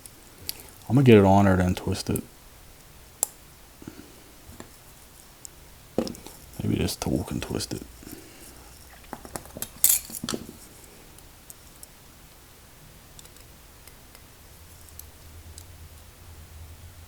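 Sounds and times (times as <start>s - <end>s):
tool clinking on padlock parts: 9.8s - 10.2s.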